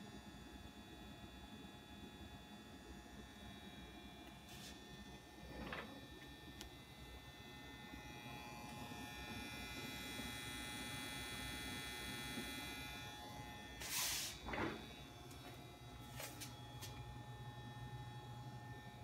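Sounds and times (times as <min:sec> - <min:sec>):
computer high-pitched electrical whine: 0:00.0 - 0:19.0
short noisy bursts: 0:13.8 - 0:14.4.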